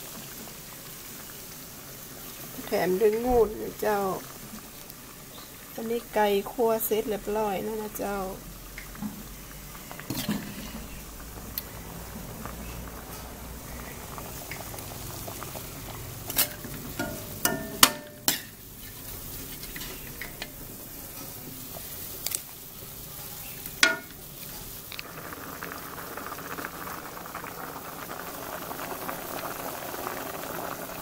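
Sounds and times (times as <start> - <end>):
curry bubbling: 0.0 - 31.0
low sizzle: 0.0 - 31.0
metal spoon clinking against pot: 16.3 - 18.5, 23.8 - 24.2.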